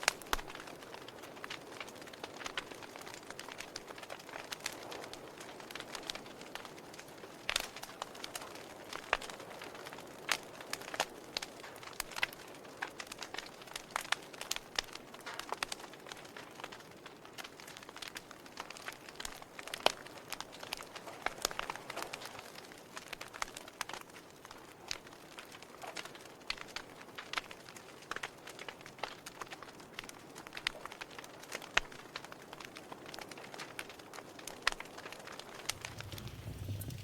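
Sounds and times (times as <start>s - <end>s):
logs crackling and popping: 0.0s - 37.0s
soft fire hiss: 35.1s - 37.0s.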